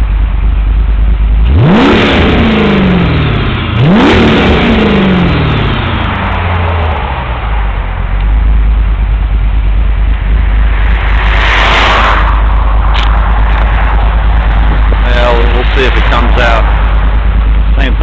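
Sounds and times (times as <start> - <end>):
car engine idling: 0.0 - 18.0
passing car road noise: 5.3 - 18.0.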